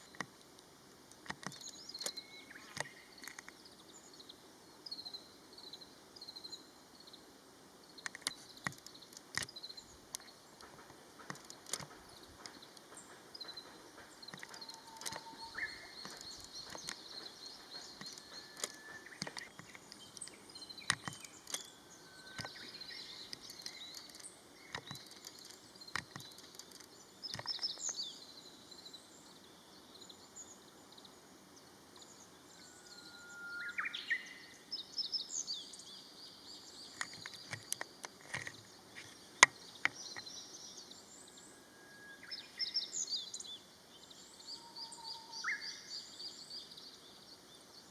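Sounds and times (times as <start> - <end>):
birds chirping and twittering: 0.0 - 47.9
sharp clicks: 8.0 - 21.7, 22.3 - 28.0.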